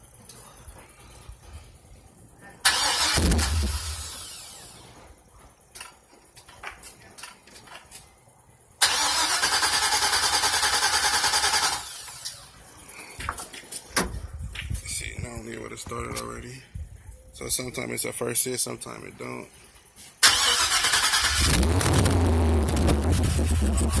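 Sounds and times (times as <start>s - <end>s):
engine cranking: 2.6s - 4.6s, 8.8s - 12.4s, 20.2s - 24.0s
loud burst: 2.7s - 4.8s.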